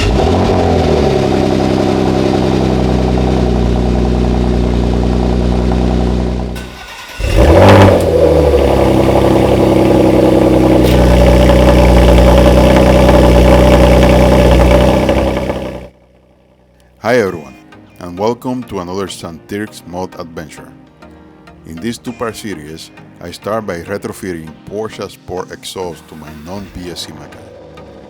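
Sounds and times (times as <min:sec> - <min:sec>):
car engine idling and revving: 0:00.0 - 0:16.9, 0:27.0 - 0:28.0.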